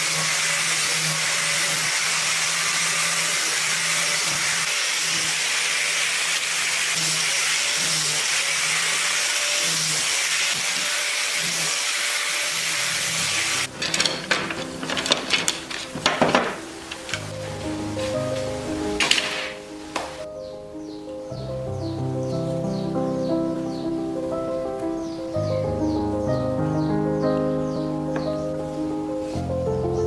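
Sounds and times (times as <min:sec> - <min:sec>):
workshop tool whirring: 0:00.0 - 0:17.9
sharp clicks and knocks: 0:13.6 - 0:17.4.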